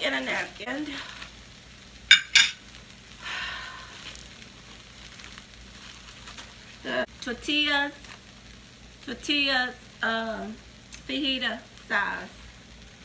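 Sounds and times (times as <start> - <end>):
chicken sizzling in a frying pan: 0.0 - 13.0
plate set down clacks: 2.1 - 2.6.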